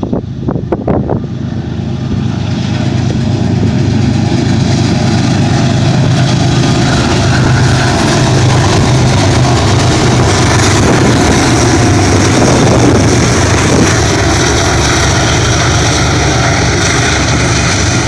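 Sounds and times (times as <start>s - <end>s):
diesel locomotive engine drone: 0.0s - 18.0s.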